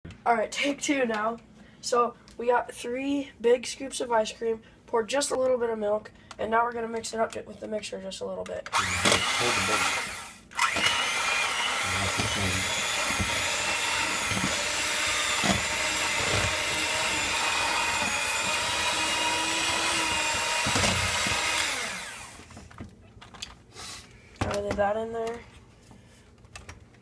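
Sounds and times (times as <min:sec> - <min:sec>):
electric mixer running: 0:08.7 - 0:22.5.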